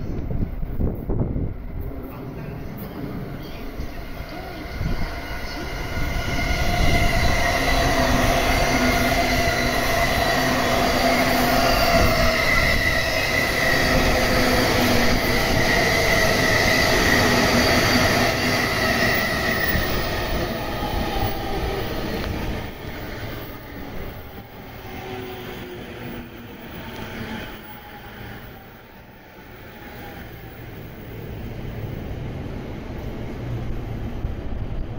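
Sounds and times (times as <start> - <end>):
train wheels rumbling on rail: 0.0 - 34.9
high whining tones: 3.8 - 26.3.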